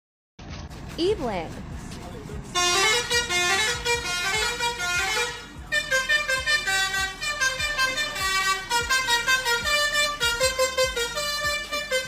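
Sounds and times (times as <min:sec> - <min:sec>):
truck musical horn playing: 0:02.5 - 0:12.0.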